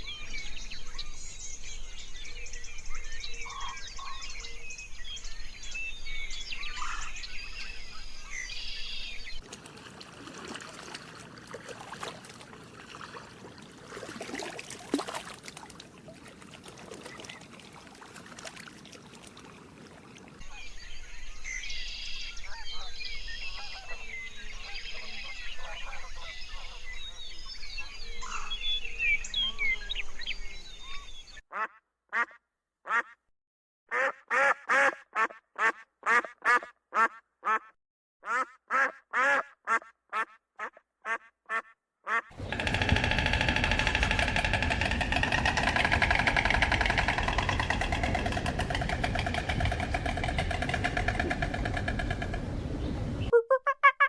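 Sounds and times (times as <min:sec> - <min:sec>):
small birds chirping: 0:00.0 - 0:09.4, 0:42.4 - 0:53.3
duck quacking: 0:31.5 - 0:33.2, 0:33.9 - 0:42.3.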